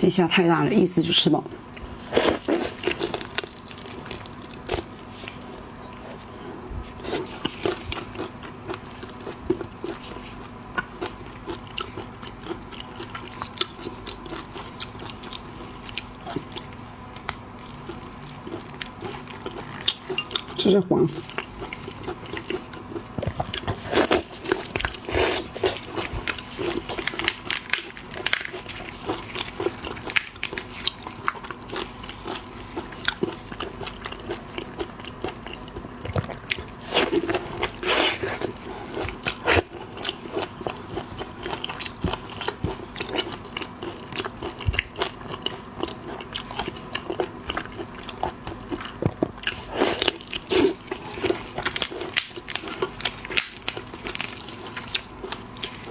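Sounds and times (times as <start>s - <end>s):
chewing shellfish: 1.5s - 55.9s.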